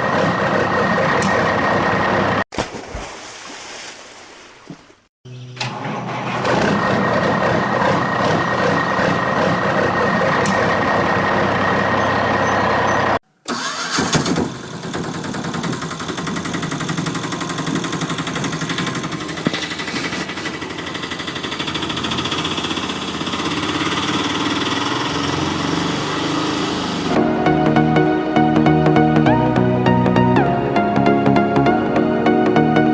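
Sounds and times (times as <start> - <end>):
noisier engine: 0.0 - 2.4, 5.3 - 27.2
vehicle engine running: 0.0 - 2.4, 5.7 - 27.2.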